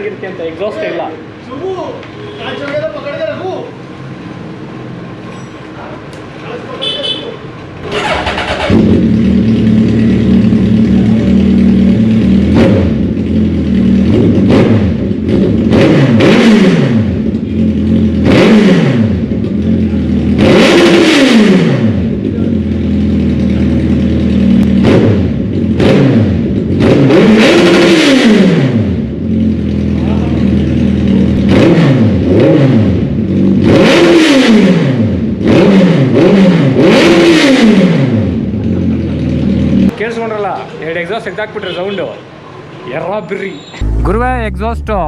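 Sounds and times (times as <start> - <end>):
loud motorcycle engine idling: 7.8 - 14.2
motorcycle engine revving: 7.8 - 39.9, 43.8 - 45.0.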